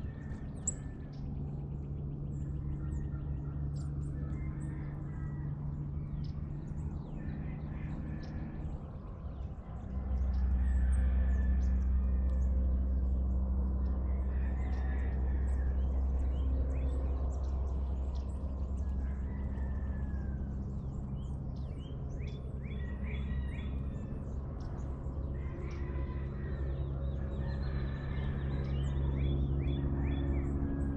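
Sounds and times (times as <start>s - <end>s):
birds chirping and calling: 0.0s - 13.1s, 13.7s - 30.9s
low mechanical drone: 0.0s - 30.9s.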